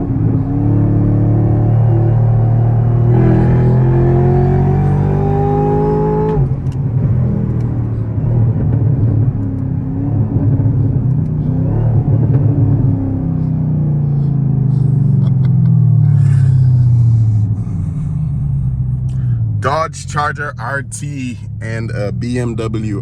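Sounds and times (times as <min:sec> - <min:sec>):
car engine accelerating hard: 0:00.0 - 0:23.0.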